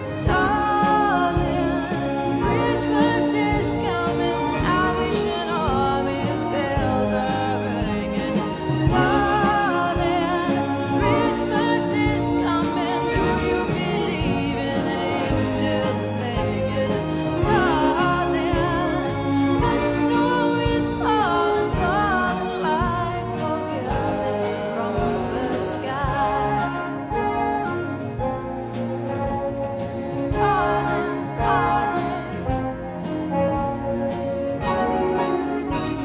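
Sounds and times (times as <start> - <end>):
orchestra and band playing ballad: 0.0 - 36.0.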